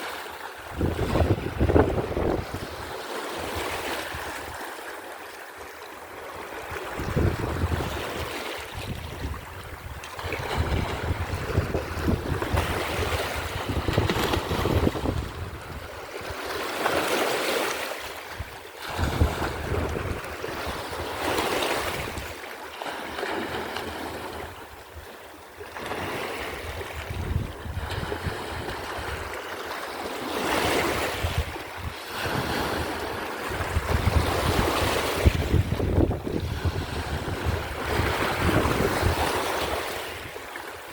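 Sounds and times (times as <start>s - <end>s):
sea waves surf: 0.0s - 40.9s
wind buffeting microphone: 0.7s - 2.9s, 6.8s - 16.4s, 18.3s - 22.4s, 26.4s - 29.4s, 30.7s - 40.4s.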